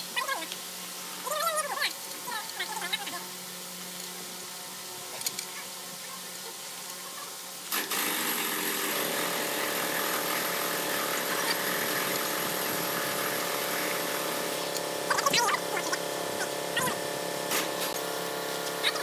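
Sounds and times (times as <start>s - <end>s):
power tool running: 7.7s - 19.0s.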